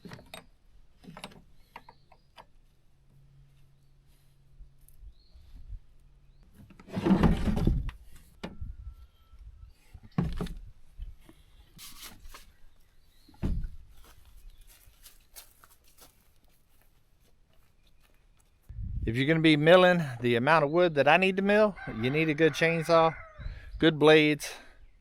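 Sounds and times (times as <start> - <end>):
scraping rustle: 11.7 - 12.6.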